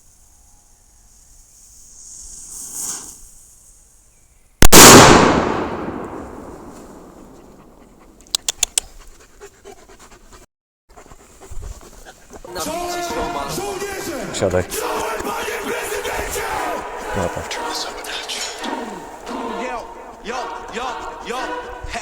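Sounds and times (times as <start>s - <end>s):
fuse hissing: 1.9s - 3.6s
firecracker bang: 4.6s - 7.8s
sharp clicks: 8.2s - 8.9s.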